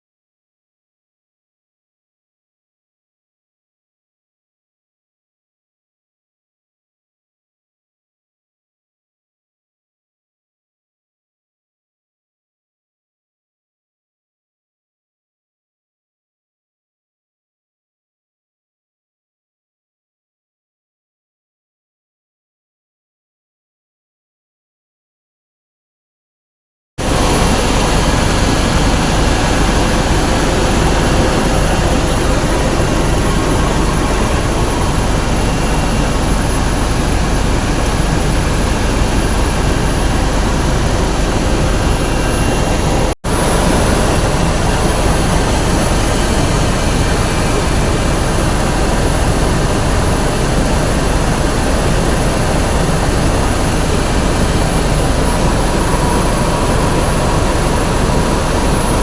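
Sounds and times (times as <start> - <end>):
helicopter engine and rotor noise: 27.0 - 59.0.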